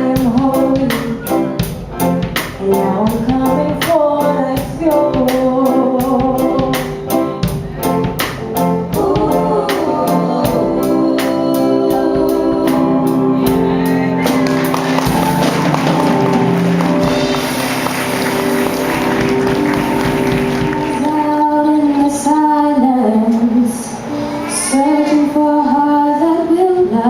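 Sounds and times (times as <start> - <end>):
gospel music with steady beat: 0.0 - 27.0
wavering vocal: 8.9 - 14.3.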